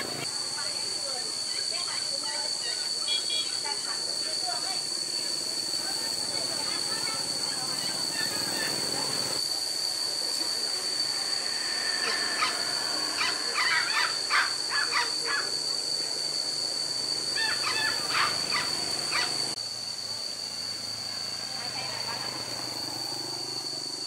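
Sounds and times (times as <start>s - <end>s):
steady high-pitched whine: 0.0s - 24.0s
bird calling in harsh notes: 11.5s - 15.6s, 17.3s - 19.5s.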